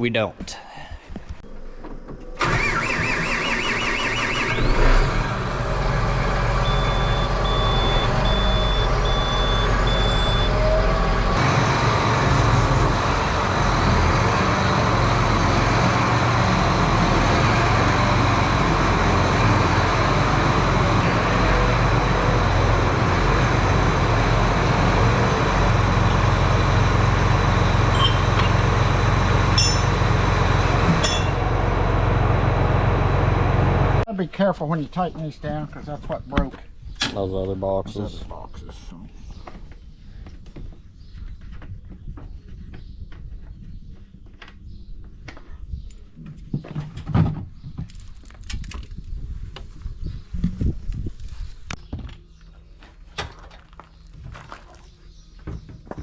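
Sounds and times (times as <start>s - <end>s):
tractor diesel engine running: 2.4s - 34.1s
high beeps: 6.6s - 10.7s.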